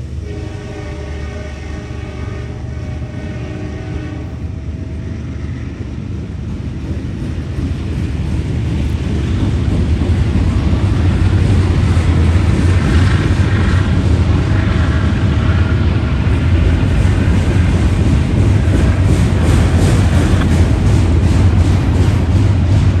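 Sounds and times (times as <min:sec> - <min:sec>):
diesel locomotives rumbling: 0:00.0 - 0:23.0
train horn: 0:00.2 - 0:05.1.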